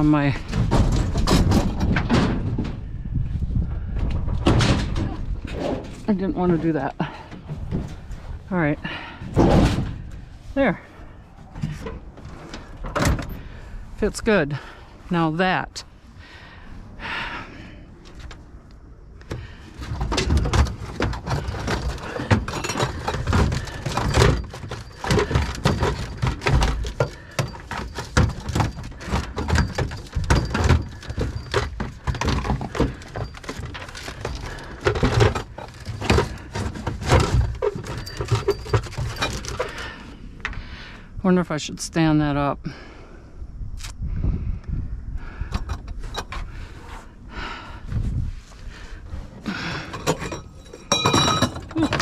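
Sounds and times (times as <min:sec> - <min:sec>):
objects knocking and thumping: 0:00.0 - 0:03.0, 0:03.7 - 0:10.8, 0:19.2 - 0:40.6, 0:45.3 - 0:48.8, 0:49.4 - 0:52.0.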